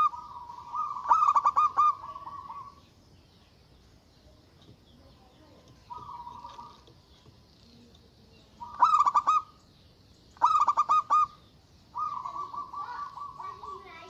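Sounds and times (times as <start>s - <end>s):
dove cooing: 0.0s - 2.9s, 5.8s - 7.0s, 8.5s - 9.6s, 10.4s - 14.0s.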